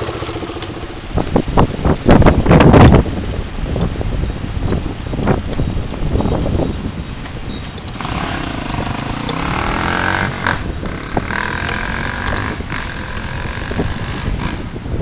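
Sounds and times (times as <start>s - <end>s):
vehicle engine running: 0.0s - 1.8s, 7.7s - 14.9s.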